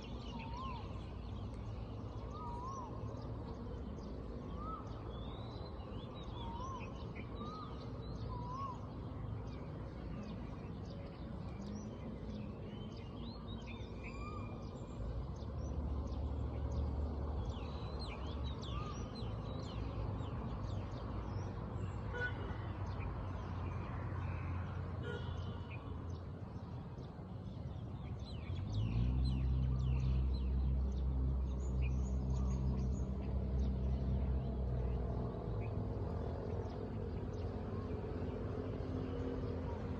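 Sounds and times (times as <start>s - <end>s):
birds chirping and calling: 0.0s - 15.8s.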